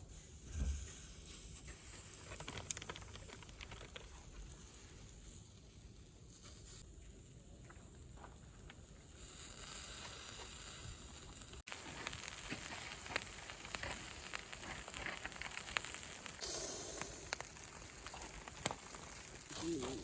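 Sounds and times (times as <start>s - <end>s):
food sizzling on grill: 0.1s - 2.8s, 4.1s - 20.0s
firewood crackling and popping: 0.1s - 20.0s.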